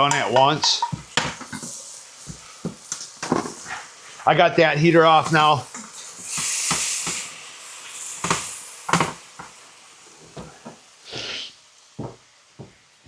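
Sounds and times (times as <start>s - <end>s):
kitchen items knocking and clattering: 0.0s - 3.9s, 8.2s - 9.5s
food sizzling in a pan: 0.0s - 13.0s.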